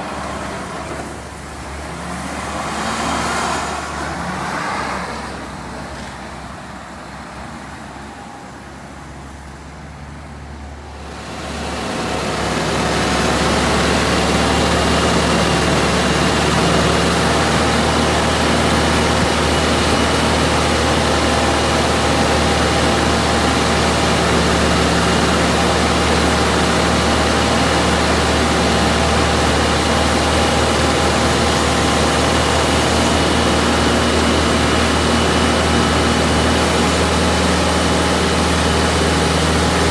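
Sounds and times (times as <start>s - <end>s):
large engine running: 0.0s - 39.9s.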